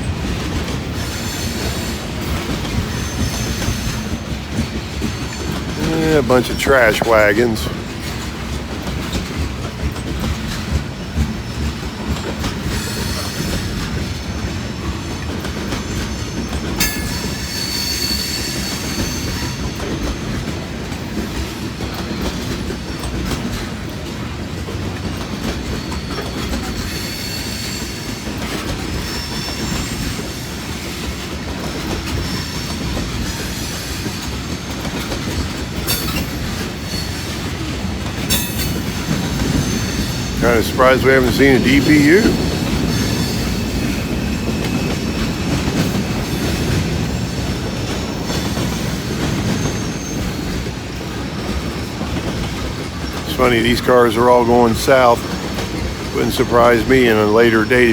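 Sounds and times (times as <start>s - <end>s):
clickety-clack over rail joints: 0.0s - 57.9s
train wheels rumbling on rails: 0.0s - 57.9s
wheel squeal: 0.8s - 5.7s, 10.5s - 20.4s, 25.4s - 40.5s, 42.2s - 53.2s.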